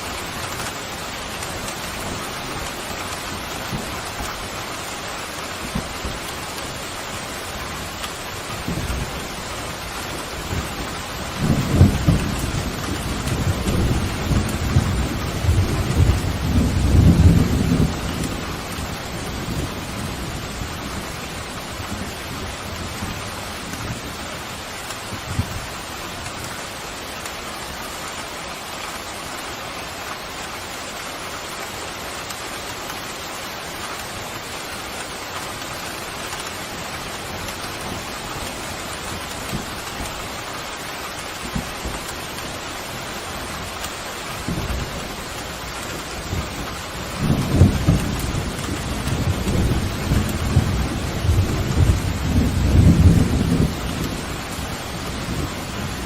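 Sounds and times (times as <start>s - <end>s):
pouring rain: 0.0s - 56.0s
low thunder rumble: 10.5s - 21.2s, 45.9s - 56.0s.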